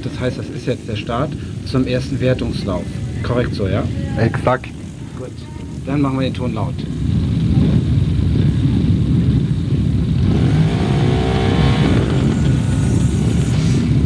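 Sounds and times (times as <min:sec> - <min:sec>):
motocross bikes racing: 0:00.0 - 0:14.0
engine rising and falling in pitch: 0:10.1 - 0:14.0.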